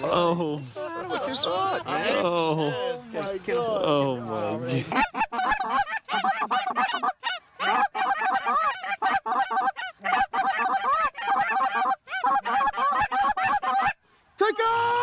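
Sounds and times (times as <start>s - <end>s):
geese honking and clucking: 4.7s - 14.0s.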